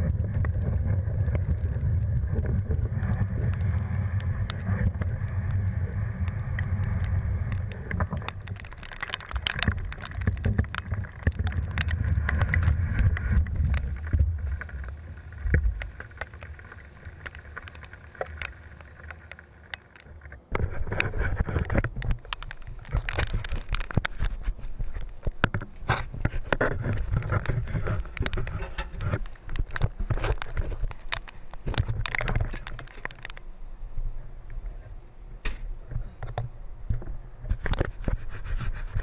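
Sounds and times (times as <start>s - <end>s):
wind buffeting microphone: 0.0s - 16.4s
scattered ticks and taps: 0.0s - 39.0s.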